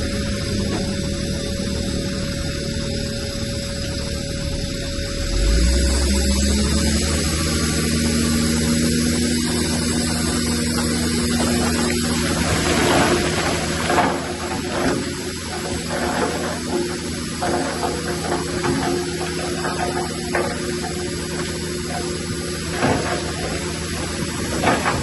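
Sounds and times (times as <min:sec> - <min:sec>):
bulldozer diesel engine revving: 0:05.2 - 0:25.0.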